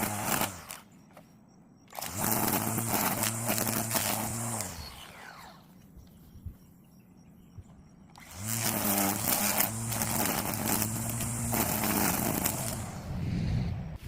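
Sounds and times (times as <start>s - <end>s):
engine running: 1.9s - 6.1s, 7.6s - 14.0s.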